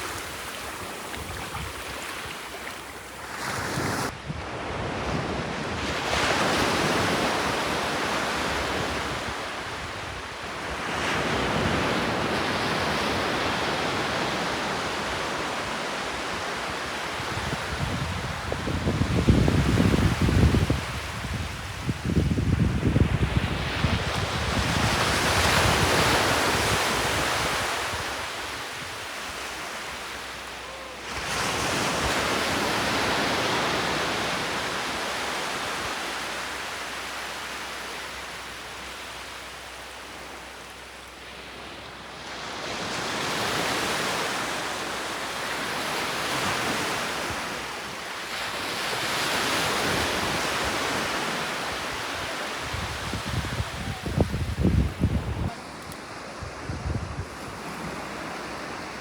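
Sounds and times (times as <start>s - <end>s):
sea waves surging onto shore: 0.0s - 4.1s, 23.2s - 59.0s.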